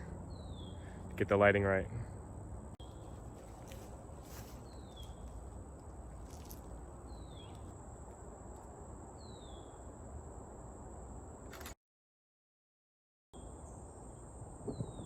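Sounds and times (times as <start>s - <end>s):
insect drone: 0.0s - 11.8s, 13.4s - 15.0s.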